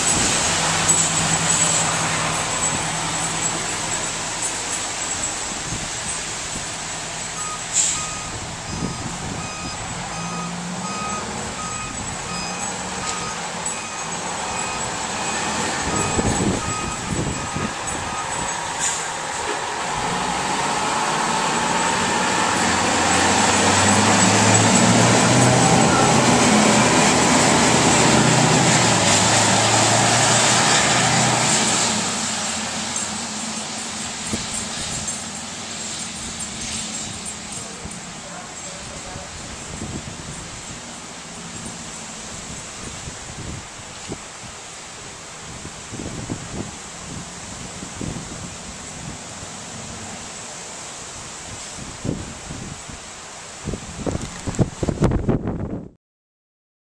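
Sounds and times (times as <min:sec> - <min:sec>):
storm wind: 0:00.0 - 0:38.2, 0:38.9 - 0:55.9
heavy engine running: 0:00.0 - 0:43.7
rain: 0:00.0 - 0:55.8
truck reversing alarm beeping: 0:07.2 - 0:19.0, 0:23.6 - 0:28.3.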